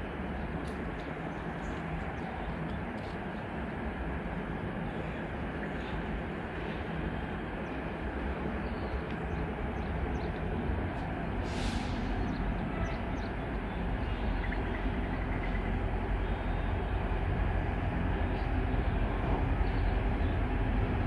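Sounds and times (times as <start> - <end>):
distant train rumbling: 0.0 - 21.0
short hiss: 11.4 - 12.1.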